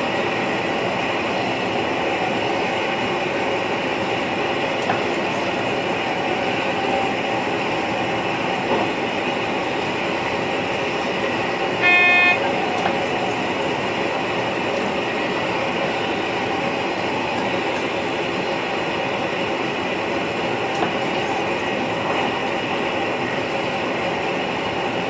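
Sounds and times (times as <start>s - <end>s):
electric train running: 0.0s - 25.0s
short train horn toot: 11.8s - 12.5s.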